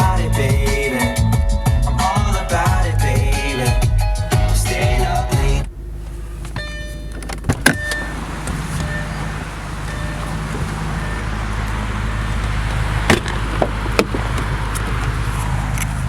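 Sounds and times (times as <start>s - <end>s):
car engine idling: 0.0s - 16.0s
clicks and knocks from handling car: 5.6s - 10.9s, 12.4s - 16.0s.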